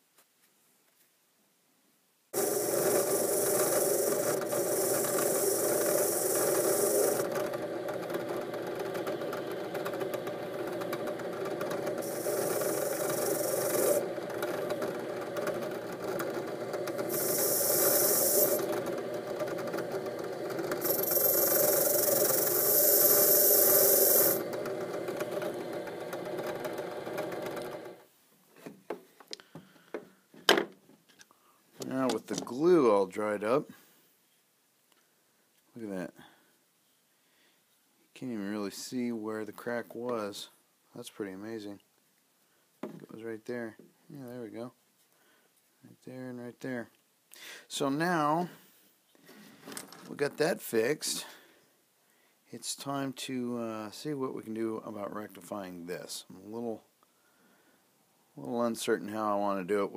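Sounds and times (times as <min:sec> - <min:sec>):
drill press humming: 0:02.4 - 0:28.0
screw rasping on spinning wheel: 0:02.4 - 0:28.0.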